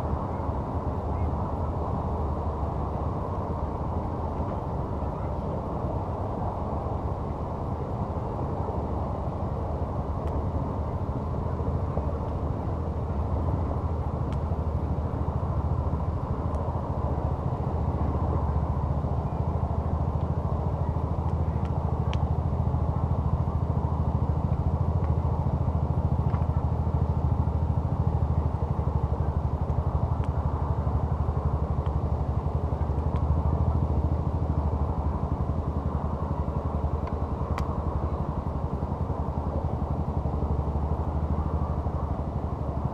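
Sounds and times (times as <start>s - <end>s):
campfire crackling: 7.0s - 42.9s.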